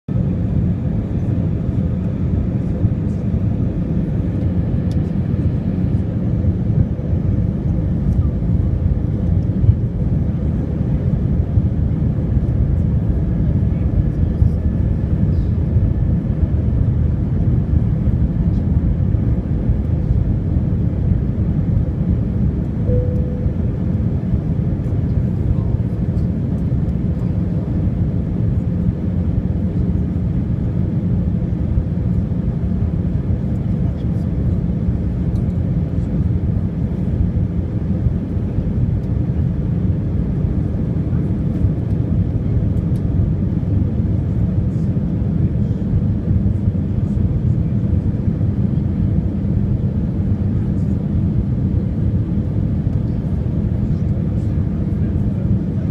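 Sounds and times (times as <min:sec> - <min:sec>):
airliner cabin engine rumble: 0:00.1 - 0:55.9
faint steady hum: 0:22.6 - 0:27.7.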